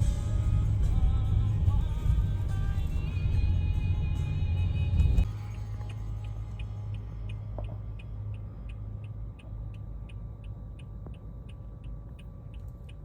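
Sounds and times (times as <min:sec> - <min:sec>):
train car rumbling: 0:00.0 - 0:07.7.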